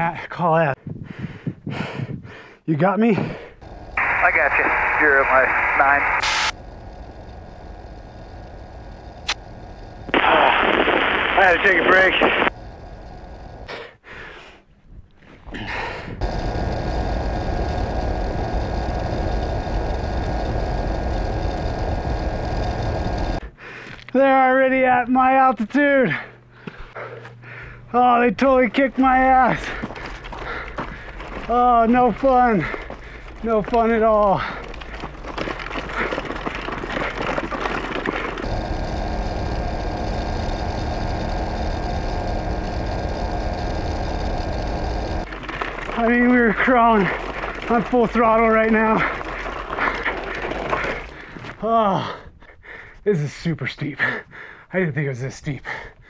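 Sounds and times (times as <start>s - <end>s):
vehicle motor running: 3.6s - 13.8s, 16.2s - 23.5s, 29.6s - 51.4s
heavy low rumble: 3.6s - 13.9s, 15.6s - 23.8s, 27.5s - 51.5s.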